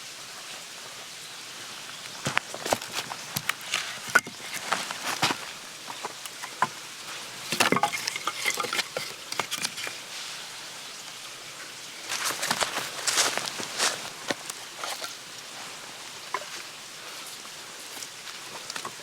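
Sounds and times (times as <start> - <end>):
dry leaves and twigs crunching: 1.9 - 10.0, 12.0 - 19.0.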